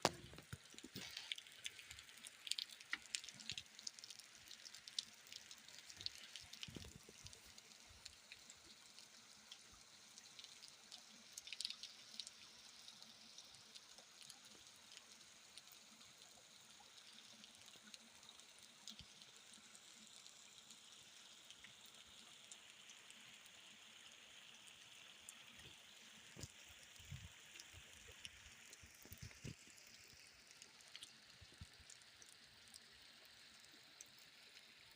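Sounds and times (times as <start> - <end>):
raindrops ticking: 0.0 - 12.4, 25.6 - 34.9
faint rain falling: 0.0 - 34.9.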